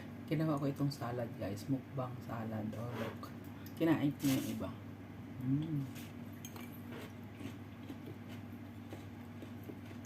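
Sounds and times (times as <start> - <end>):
steady low hum: 0.0 - 10.0
person humming mm: 5.4 - 6.1.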